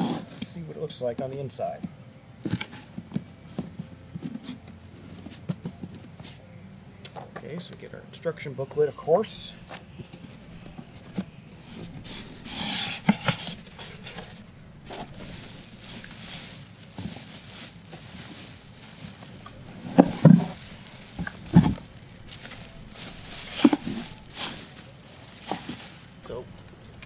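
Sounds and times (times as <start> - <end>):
plastic wrapping crinkling: 10.1 - 27.0
cardboard and foam handled: 10.2 - 26.4.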